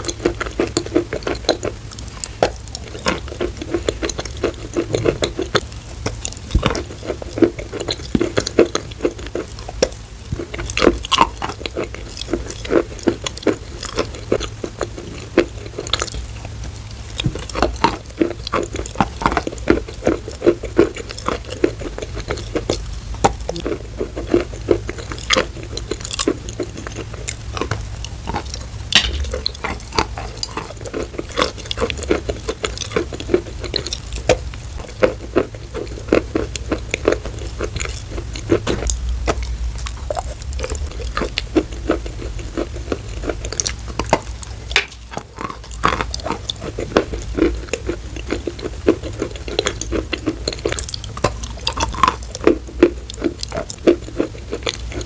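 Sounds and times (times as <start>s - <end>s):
hard objects clicking and tapping: 28.4s - 30.7s.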